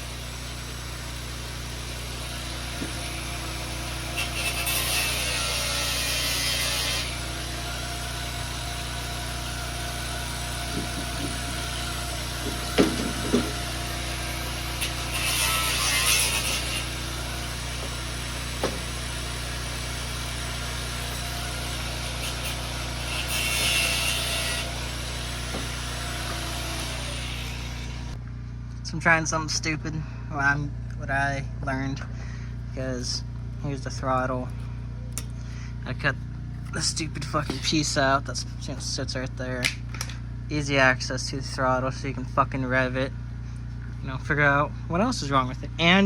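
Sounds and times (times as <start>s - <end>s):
power tool cutting: 0.0s - 28.2s, 36.6s - 38.6s
sharp knocks: 12.4s - 13.6s, 18.6s - 18.9s
steady low hum: 24.0s - 46.0s.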